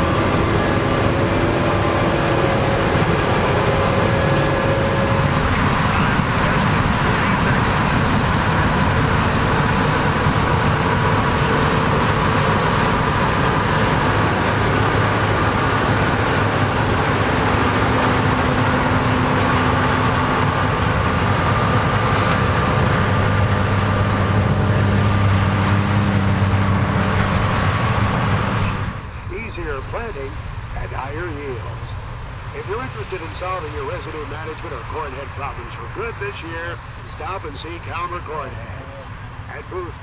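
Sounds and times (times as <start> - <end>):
combine harvester engine drone: 0.0 - 40.0.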